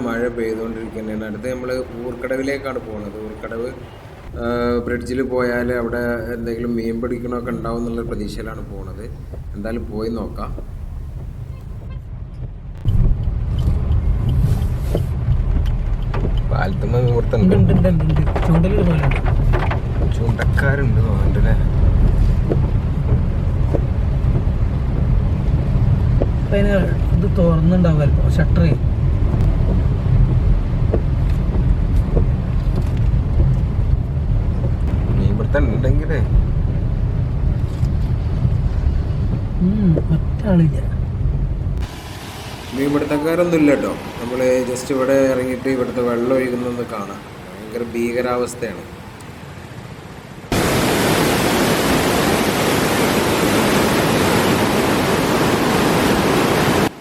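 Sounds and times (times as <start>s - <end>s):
loud rush of floodwater: 0.0s - 4.3s, 41.8s - 57.0s
engine and road rumble: 0.0s - 57.0s.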